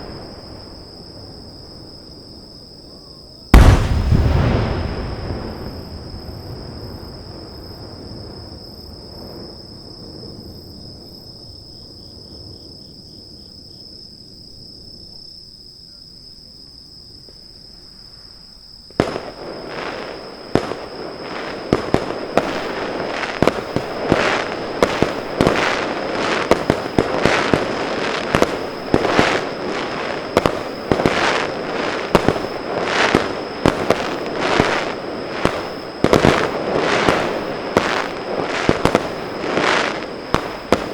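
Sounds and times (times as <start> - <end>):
echoing firework rumble: 3.5 - 11.3, 19.0 - 40.9
aerial shell bangs and crackling: 3.6 - 6.4.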